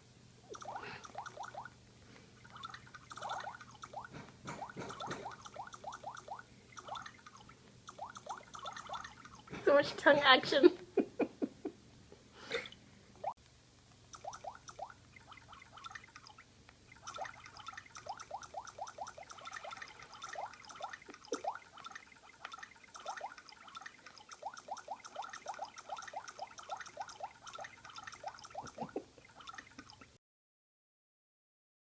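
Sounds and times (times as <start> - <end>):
water drop sound effects from phone: 0.5 - 1.7, 2.5 - 9.5, 14.1 - 30.0.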